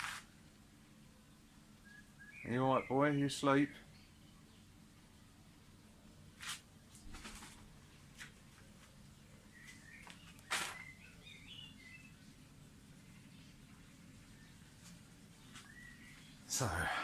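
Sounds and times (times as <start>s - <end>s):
faint bird chirps: 1.8s - 4.8s, 9.2s - 12.4s, 13.0s - 17.0s
short scuffing noises: 6.4s - 7.6s, 9.7s - 10.9s.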